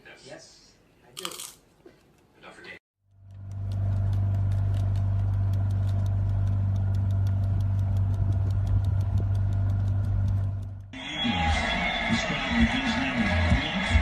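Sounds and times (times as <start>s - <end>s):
fast regular ticking: 3.1s - 11.0s
motor humming: 3.2s - 11.0s.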